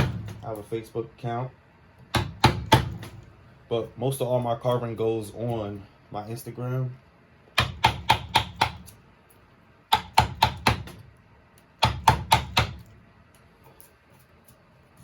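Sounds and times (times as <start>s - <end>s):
carving strikes knocking on wood: 0.0s - 0.4s, 2.1s - 3.2s, 7.6s - 8.9s, 9.9s - 11.0s, 11.8s - 12.8s.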